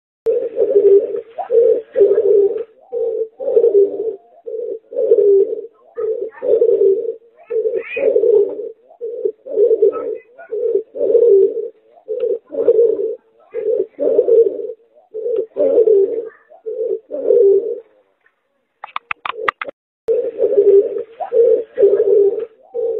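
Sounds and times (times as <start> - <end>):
dove cooing: 0.3 - 18.1, 18.9 - 22.9.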